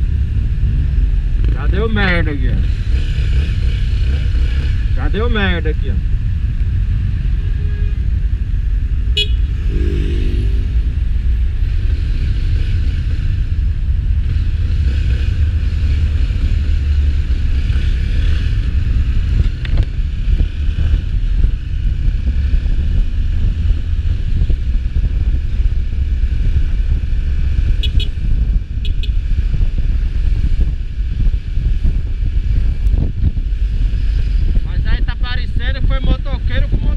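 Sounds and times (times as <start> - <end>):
road traffic rumble: 0.0 - 36.9
vehicle horn: 9.1 - 11.3, 27.8 - 28.1.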